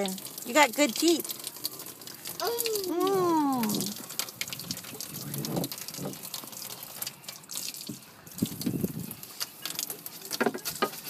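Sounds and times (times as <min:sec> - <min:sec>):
water dripping and splashing: 0:00.0 - 0:11.0
toddler babbling: 0:02.4 - 0:03.9.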